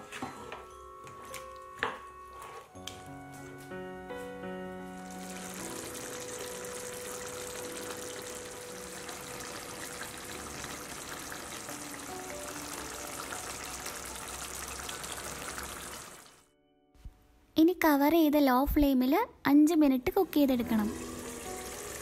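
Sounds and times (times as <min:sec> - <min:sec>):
soft background music: 0:00.0 - 0:22.0
chicken sizzling in a pan: 0:05.0 - 0:16.4, 0:20.8 - 0:22.0.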